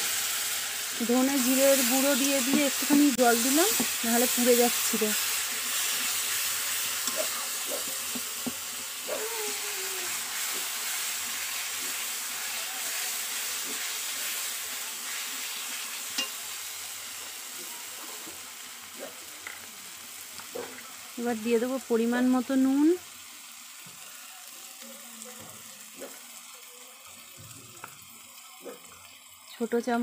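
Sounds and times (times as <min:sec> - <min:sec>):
masala sizzling in a pan: 0:00.0 - 0:30.0
spatula scraping a pan: 0:01.4 - 0:08.8.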